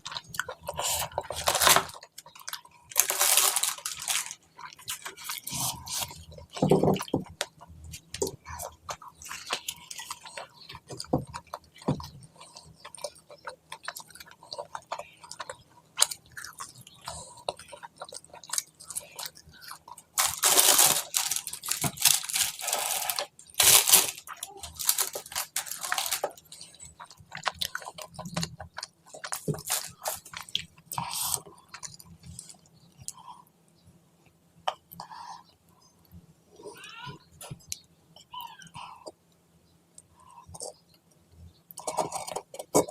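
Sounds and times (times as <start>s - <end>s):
person chewing food: 0.0s - 33.8s, 37.4s - 42.9s
crisp crunching: 0.7s - 6.2s, 18.4s - 28.5s, 29.1s - 32.2s.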